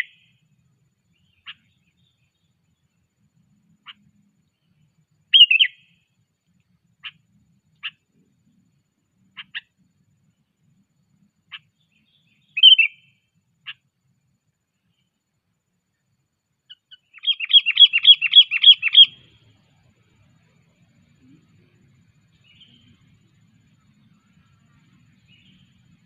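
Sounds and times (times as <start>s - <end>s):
bird calling sharp chips: 17.2s - 19.2s.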